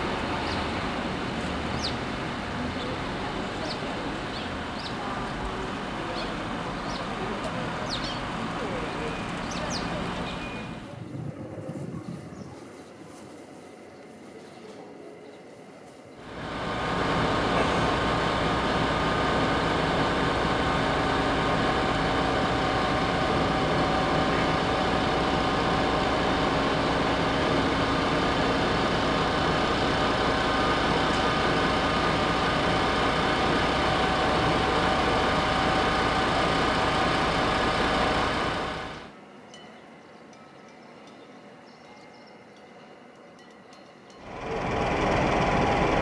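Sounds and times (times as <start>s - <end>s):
diesel train engine drone: 0.0s - 11.4s, 16.2s - 39.2s, 44.1s - 46.0s.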